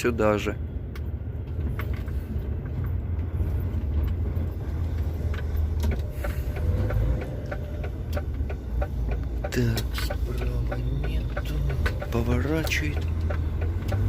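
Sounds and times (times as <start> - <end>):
truck engine rumble inside cab: 0.0 - 14.0.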